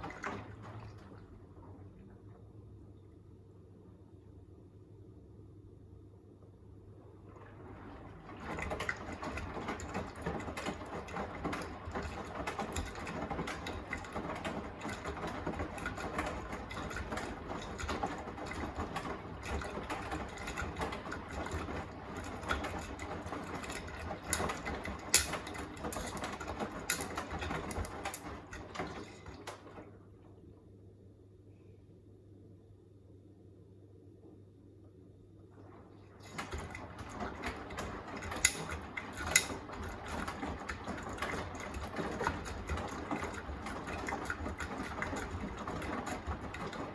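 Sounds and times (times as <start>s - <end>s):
washing machine tumbling: 0.0s - 31.3s, 34.1s - 46.9s
small clicks and knocks: 23.7s - 28.3s.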